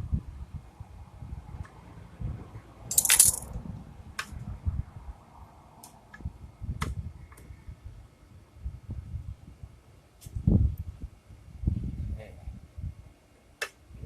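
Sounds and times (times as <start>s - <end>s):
metal parts and tools clinking: 2.9s - 3.5s
metallic clatter: 2.9s - 3.5s.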